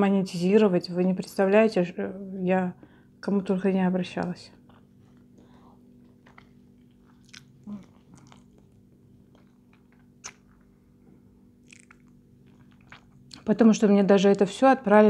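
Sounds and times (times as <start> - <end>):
faint steady hum: 0.0 - 15.0
person chewing food: 4.6 - 13.4
wet mouth clicks: 6.0 - 10.7, 11.6 - 13.5.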